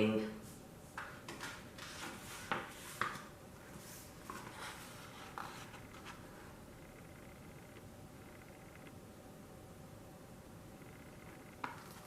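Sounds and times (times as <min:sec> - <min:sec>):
paper rustling: 0:01.0 - 0:06.4.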